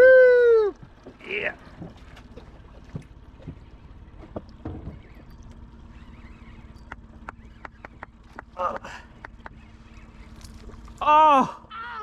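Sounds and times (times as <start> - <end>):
boat engine hum: 0.0 - 12.0
light clicks and knocks: 0.8 - 5.7.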